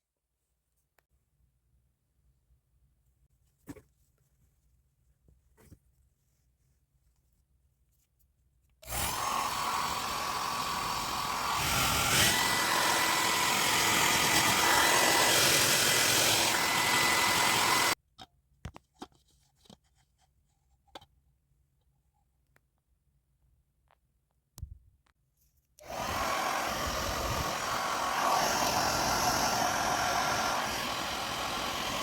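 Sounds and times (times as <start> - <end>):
hair dryer blowing: 8.8 - 18.0, 25.8 - 32.0.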